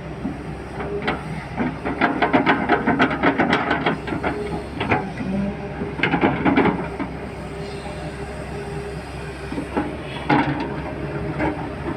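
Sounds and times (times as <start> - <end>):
heavy machinery engine hum: 0.0 - 11.9.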